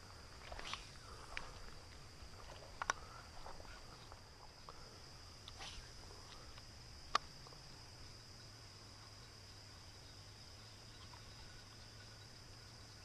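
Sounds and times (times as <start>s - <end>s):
insects droning: 0.0s - 13.0s
sharp clicks: 2.8s - 3.0s.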